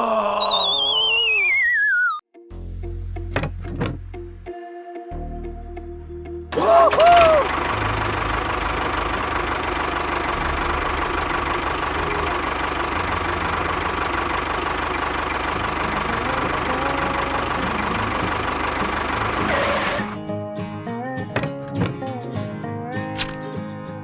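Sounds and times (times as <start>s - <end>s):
tractor engine chugging: 7.1s - 20.2s
guitar music: 15.5s - 24.0s.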